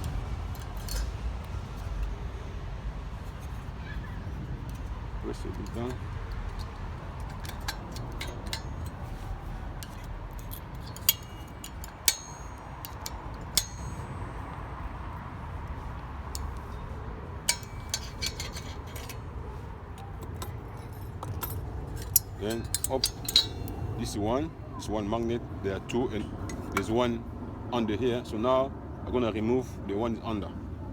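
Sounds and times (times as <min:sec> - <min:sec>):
metallic clicks and clinks: 0:00.0 - 0:02.2, 0:04.6 - 0:14.8, 0:15.6 - 0:24.0.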